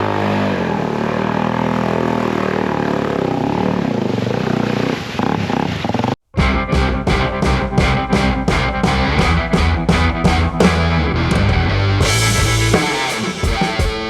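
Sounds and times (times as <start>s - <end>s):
dirt bike engine revving: 0.0s - 14.0s
music: 6.4s - 14.0s.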